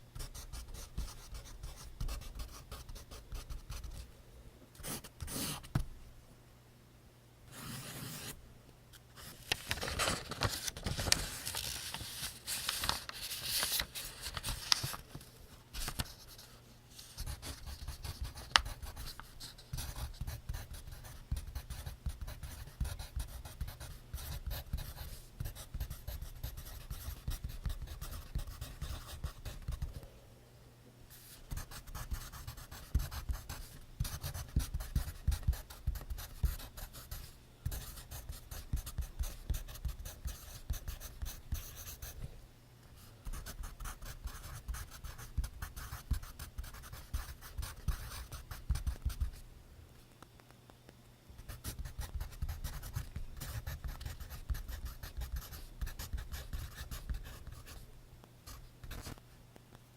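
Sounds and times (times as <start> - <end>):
pencil writing on paper: 4.8 - 5.7, 7.5 - 8.4, 17.2 - 29.9, 31.5 - 42.1, 51.6 - 57.8.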